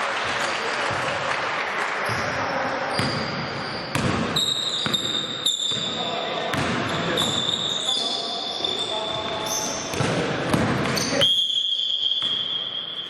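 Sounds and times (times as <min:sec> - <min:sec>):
basketball bouncing on court: 0:02.9 - 0:07.8, 0:08.7 - 0:11.2
short high squeaks: 0:03.6 - 0:06.0, 0:06.9 - 0:09.9.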